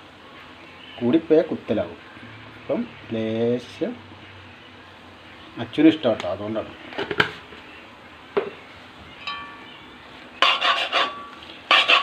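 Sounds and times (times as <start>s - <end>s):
metal spoon scraping pan: 10.4s - 12.0s.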